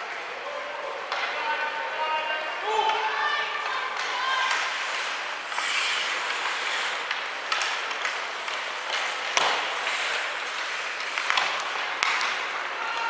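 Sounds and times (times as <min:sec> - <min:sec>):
crowd noise: 0:00.0 - 0:13.0
hockey sticks and puck clacking: 0:01.1 - 0:01.6, 0:02.7 - 0:13.0
skates hissing on ice: 0:03.7 - 0:13.0.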